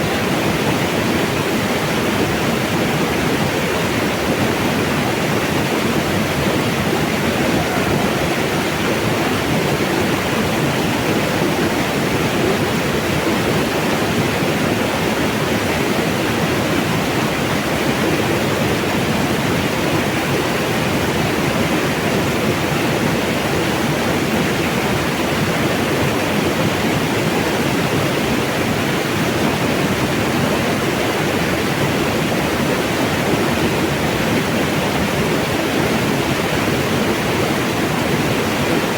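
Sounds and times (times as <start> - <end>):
mountain water rushing: 0.0 - 38.9.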